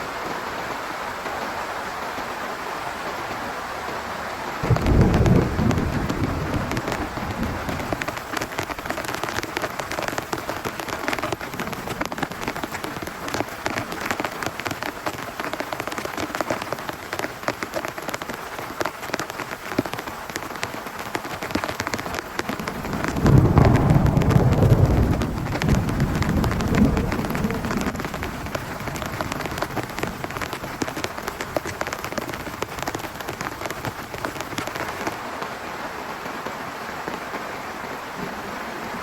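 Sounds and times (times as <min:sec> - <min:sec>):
heavy rain on tent fabric: 0:00.0 - 0:39.0
low rumble of thunder: 0:04.6 - 0:08.9, 0:22.4 - 0:30.3.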